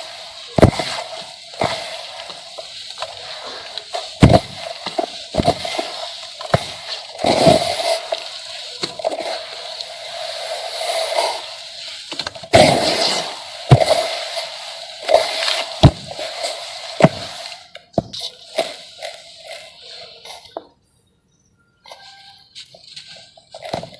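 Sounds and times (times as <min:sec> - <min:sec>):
concrete crumbling and cracking: 0:00.4 - 0:09.7, 0:17.0 - 0:17.4.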